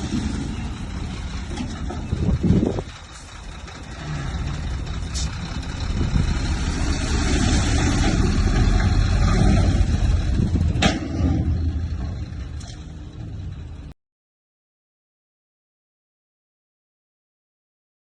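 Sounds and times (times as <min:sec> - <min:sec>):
heavy machinery diesel engine: 0:00.0 - 0:14.0.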